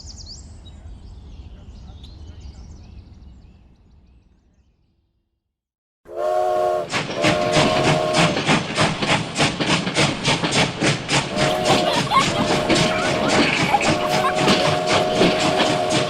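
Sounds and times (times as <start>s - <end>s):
steam train whistle: 6.1s - 8.6s, 11.2s - 16.0s
steam train chugging: 6.1s - 16.0s.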